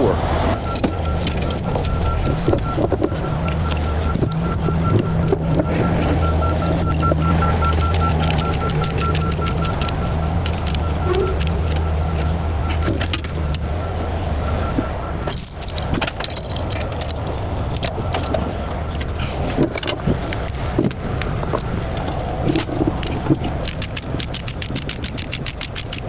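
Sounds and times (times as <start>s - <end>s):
low engine hum: 0.0s - 25.5s
chains clinking and rattling: 0.5s - 26.0s
quick run of clicks: 19.0s - 26.0s.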